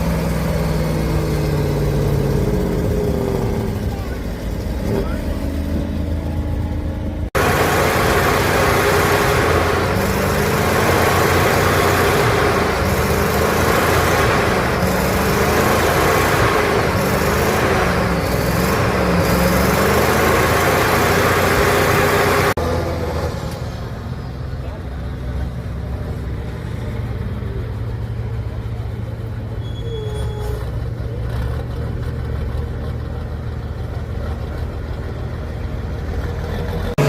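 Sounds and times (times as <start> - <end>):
truck engine working hard: 0.0 - 37.0
dense rushing noise: 1.4 - 24.3.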